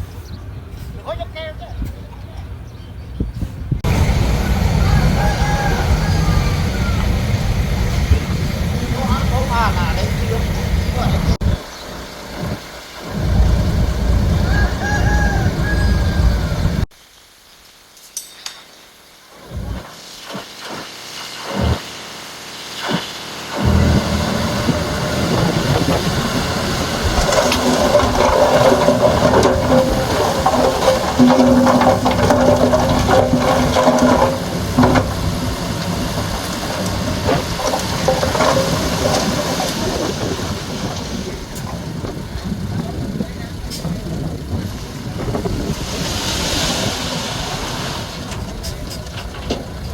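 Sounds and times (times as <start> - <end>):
heavy diesel machinery rumbling: 3.5 - 16.9, 23.4 - 49.9
low engine surges: 3.7 - 16.9, 23.4 - 49.9
steady whine: 23.5 - 40.2
scattered knocks: 23.6 - 41.0.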